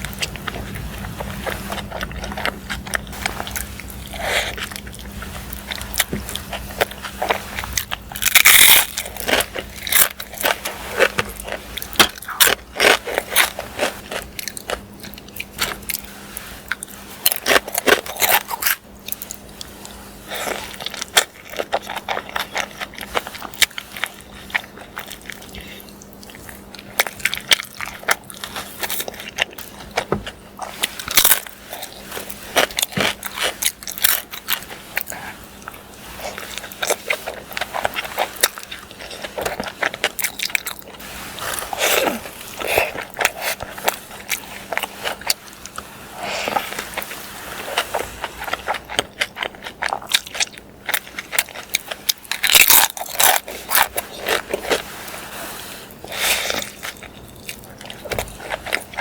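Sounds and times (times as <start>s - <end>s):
person biting and chewing food: 0.0s - 54.9s, 55.9s - 59.0s
faint steady hum: 0.0s - 59.0s.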